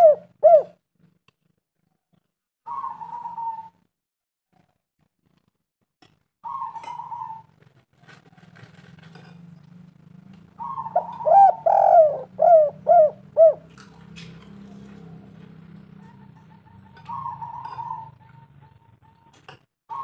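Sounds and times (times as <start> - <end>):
dove cooing: 0.0 - 0.8, 2.7 - 3.7, 6.4 - 7.6, 10.5 - 20.0.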